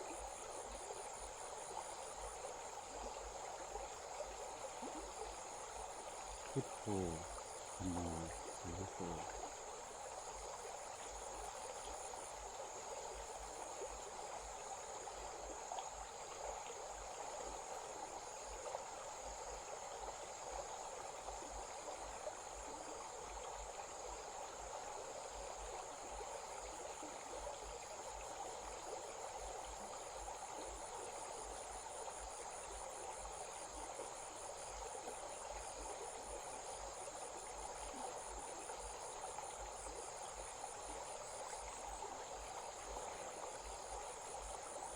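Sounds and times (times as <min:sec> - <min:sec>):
crickets trilling: 0:04.4 - 0:15.1, 0:27.7 - 0:44.9.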